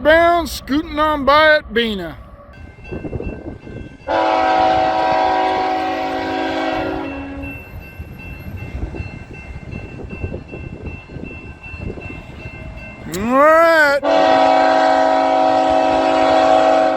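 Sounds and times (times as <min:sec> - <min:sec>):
passing train rumble: 0:00.0 - 0:16.9
locomotive air horn: 0:04.1 - 0:07.5, 0:13.9 - 0:16.9.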